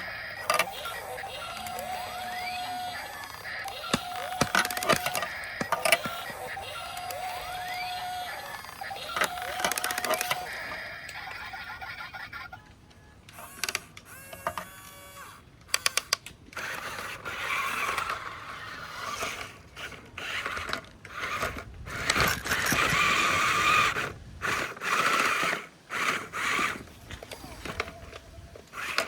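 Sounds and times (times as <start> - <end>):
sharp clicks: 0.0 - 11.2, 12.9 - 18.2
toy electric motors whirring: 0.0 - 29.0.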